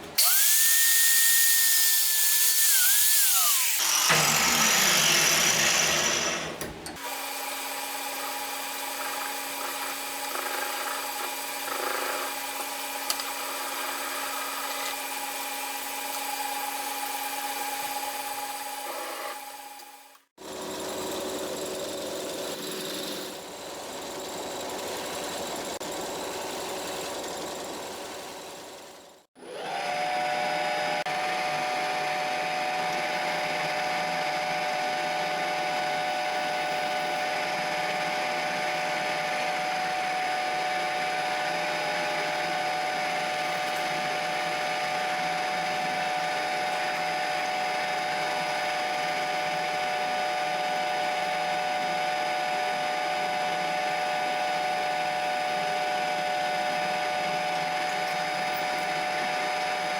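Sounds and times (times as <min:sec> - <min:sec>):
machine tool whining: 0:02.7 - 0:07.0
machine tool running: 0:03.2 - 0:06.6.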